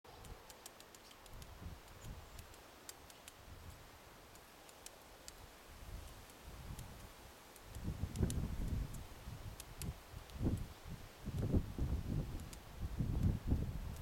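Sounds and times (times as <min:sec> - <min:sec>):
woodpecker tapping at wood: 0:00.2 - 0:05.4, 0:06.1 - 0:09.0.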